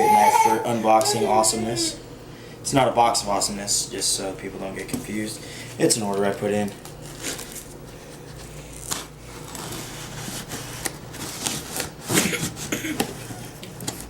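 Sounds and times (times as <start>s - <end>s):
knife cutting cardboard and tape: 8.8s - 12.7s.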